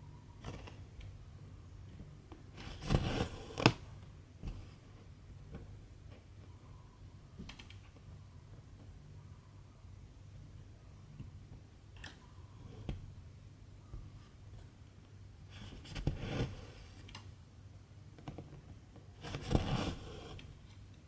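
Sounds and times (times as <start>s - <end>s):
thread rasping through fabric: 2.6s - 3.8s.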